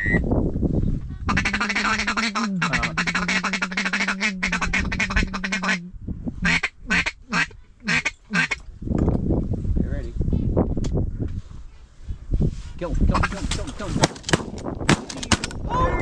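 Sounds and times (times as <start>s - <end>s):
duck call feeding chatter: 1.3s - 5.8s, 6.5s - 8.6s
duck call quacks: 1.3s - 5.8s, 6.5s - 8.6s.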